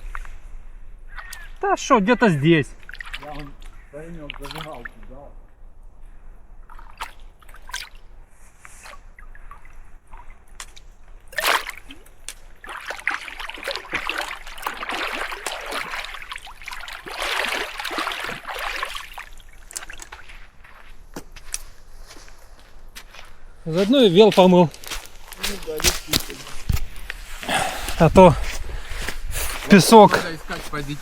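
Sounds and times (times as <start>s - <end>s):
water splashing and sloshing: 0.0s - 31.0s.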